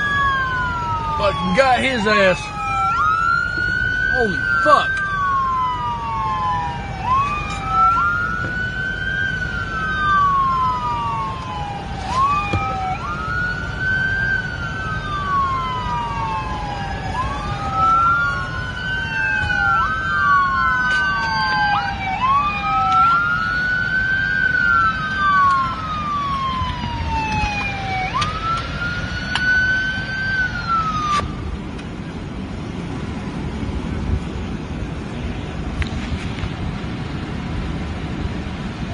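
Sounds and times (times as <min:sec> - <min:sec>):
police siren wailing: 0:00.0 - 0:31.6
engine and road noise rumble: 0:00.0 - 0:38.9.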